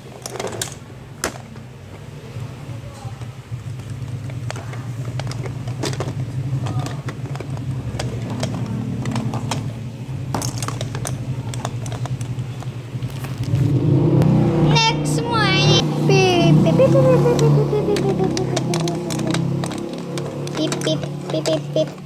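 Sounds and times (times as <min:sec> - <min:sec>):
small clicks and rattles: 0:00.0 - 0:02.1, 0:02.9 - 0:13.6, 0:17.4 - 0:22.0
car engine running: 0:03.4 - 0:22.0.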